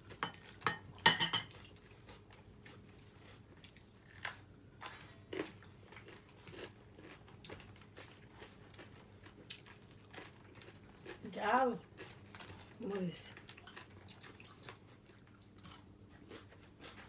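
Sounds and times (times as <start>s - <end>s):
dishes clattering: 0.2s - 1.8s
person chewing and crunching: 1.8s - 4.5s, 5.3s - 17.0s.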